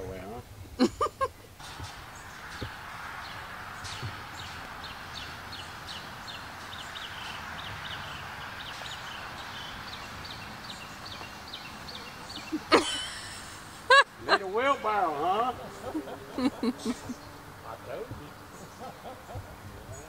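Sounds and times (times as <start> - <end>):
steady background hiss: 0.0 - 20.0
bird chirping: 1.6 - 20.0.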